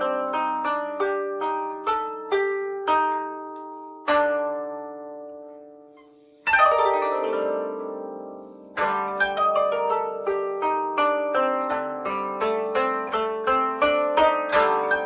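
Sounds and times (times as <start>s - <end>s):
koto plucked strings: 0.0s - 15.0s.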